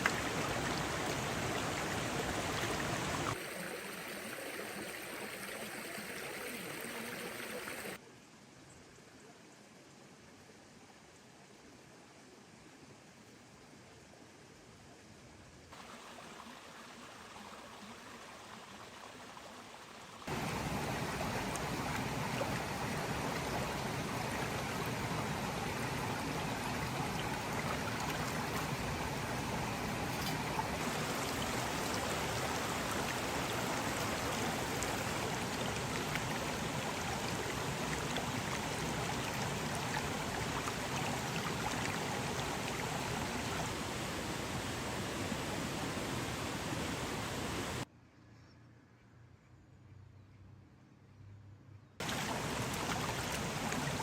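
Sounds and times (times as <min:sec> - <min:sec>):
running water rushing: 0:00.0 - 0:08.0, 0:15.8 - 0:47.8, 0:52.0 - 0:54.0
faint hiss: 0:00.0 - 0:47.9, 0:52.0 - 0:54.0.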